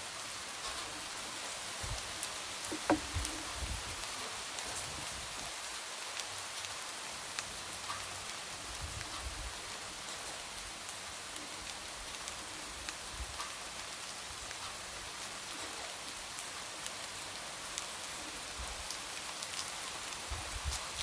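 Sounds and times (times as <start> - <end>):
light rain falling: 0.0 - 21.0
raindrops tapping on window: 2.7 - 3.4.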